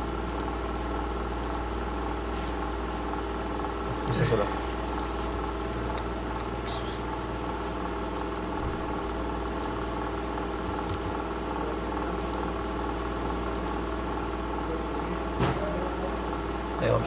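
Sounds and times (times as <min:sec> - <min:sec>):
machine hum: 0:00.0 - 0:17.0
faint clicks: 0:01.4 - 0:01.6.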